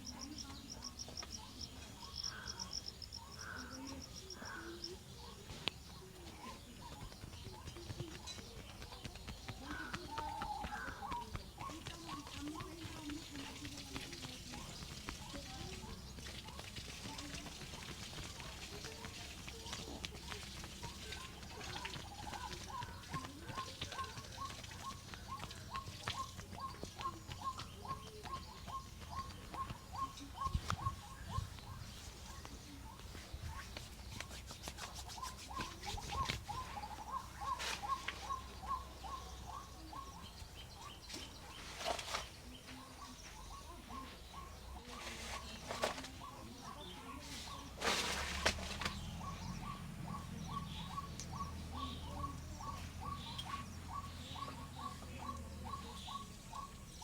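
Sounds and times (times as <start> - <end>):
bird chirping: 0.0 - 57.0
rustling: 41.1 - 42.9, 44.8 - 49.1.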